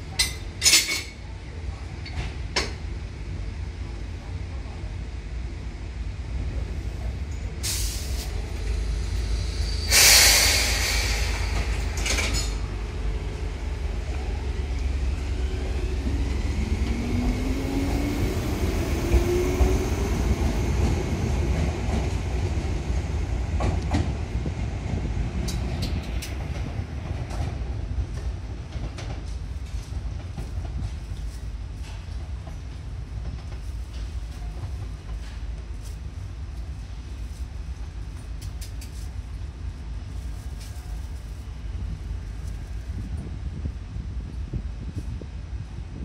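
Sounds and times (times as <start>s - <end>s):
electric train rumbling: 0.0s - 46.0s
loud air hiss: 7.6s - 12.7s.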